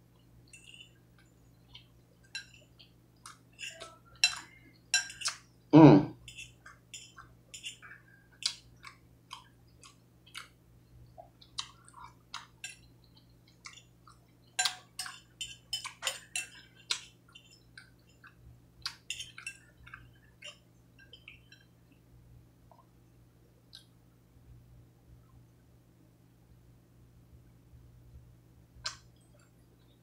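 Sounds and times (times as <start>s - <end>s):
wet chewing smacks and clicks: 6.4s - 21.7s.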